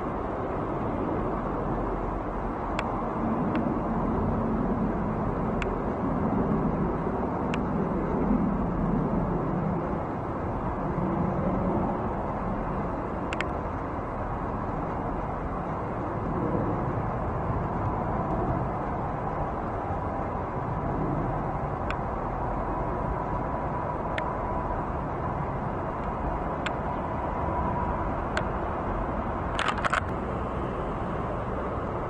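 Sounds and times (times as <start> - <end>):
distant engine rumble: 0.0 - 32.0
faint steady whine: 0.0 - 32.0
light clicks: 13.3 - 13.6.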